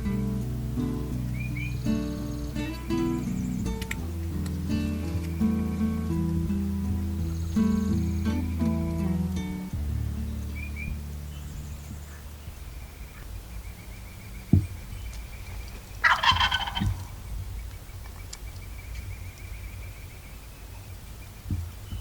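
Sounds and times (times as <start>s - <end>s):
sharp low thump: 14.4s - 15.1s
turkey gobbling: 16.0s - 17.2s.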